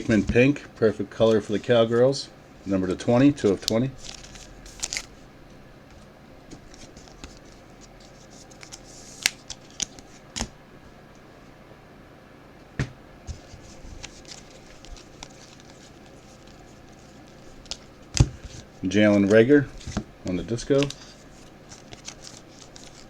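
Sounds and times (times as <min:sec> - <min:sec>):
low steady hum: 0:00.0 - 0:23.0
cards clicking and scraping: 0:02.9 - 0:05.1, 0:06.5 - 0:10.5, 0:13.3 - 0:23.0.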